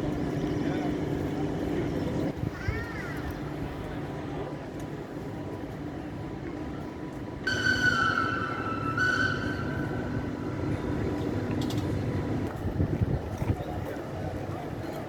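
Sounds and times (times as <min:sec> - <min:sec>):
low rumble of train: 0:00.0 - 0:15.0
train horn: 0:07.5 - 0:10.9.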